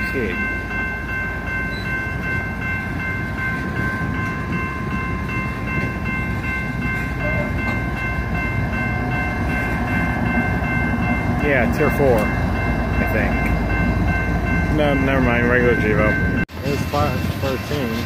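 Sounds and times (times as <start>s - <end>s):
crossing warning bell ringing: 0.0s - 18.0s
freight cars rumbling over crossing: 0.0s - 18.0s
low locomotive engine tone: 0.0s - 18.0s.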